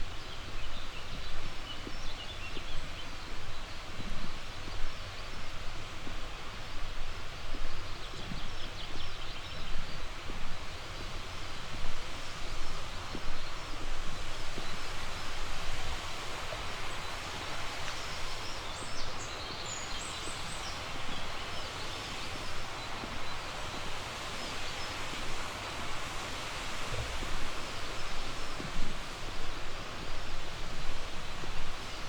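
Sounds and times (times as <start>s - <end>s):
river flowing: 12.2s - 32.0s.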